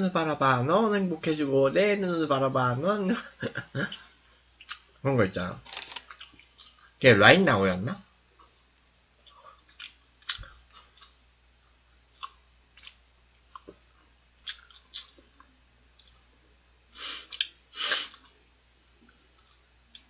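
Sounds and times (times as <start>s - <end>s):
person chewing crunchy food: 5.7s - 7.0s, 9.2s - 16.2s.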